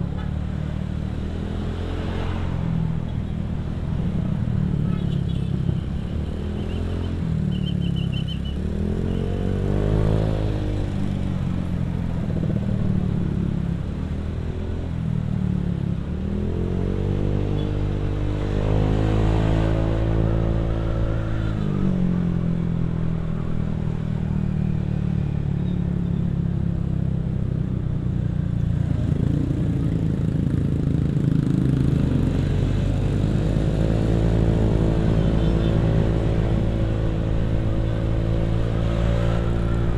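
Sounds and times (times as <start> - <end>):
motorcycle engine revving: 28.9 - 39.9.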